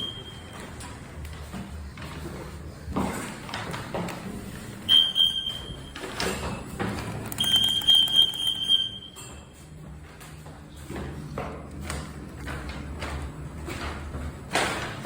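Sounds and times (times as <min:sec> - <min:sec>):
elevator chime: 0:00.0 - 0:00.6, 0:04.9 - 0:06.1, 0:07.3 - 0:09.6.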